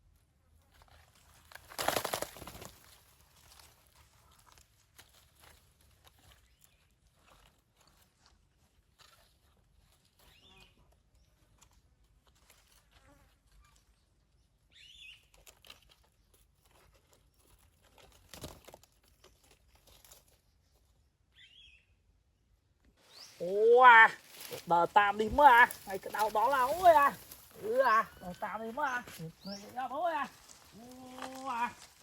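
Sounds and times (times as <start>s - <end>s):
soft rustling: 24.1s - 32.0s.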